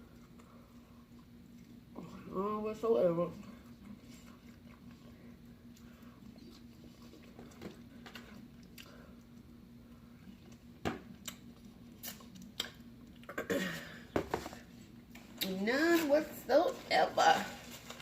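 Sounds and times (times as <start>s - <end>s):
faint steady hum: 0.0s - 18.0s
chewing chicken wings: 3.4s - 9.5s.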